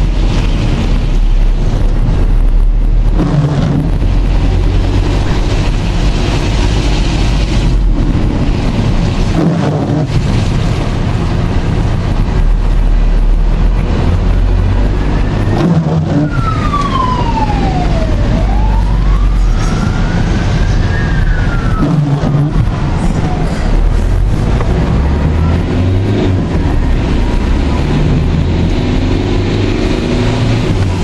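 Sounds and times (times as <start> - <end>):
wind buffeting microphone: 0.0 - 31.0
wailing tone: 15.4 - 23.7.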